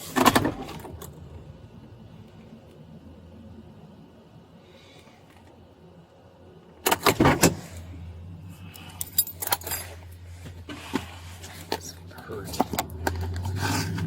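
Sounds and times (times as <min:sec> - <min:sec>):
low steady hum: 0:00.0 - 0:14.0
metallic jangling and rattling: 0:08.7 - 0:10.3.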